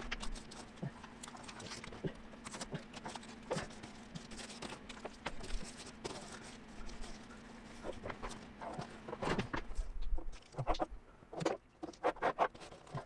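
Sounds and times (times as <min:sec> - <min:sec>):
masking paper taps and scrapes: 0:00.0 - 0:13.0
steady low hum: 0:00.0 - 0:13.0.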